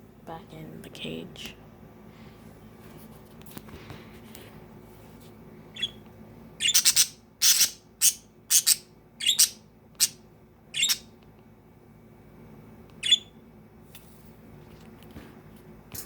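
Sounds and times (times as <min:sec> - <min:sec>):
budgerigars chirping: 0:05.8 - 0:06.0, 0:06.6 - 0:10.2, 0:10.8 - 0:11.0.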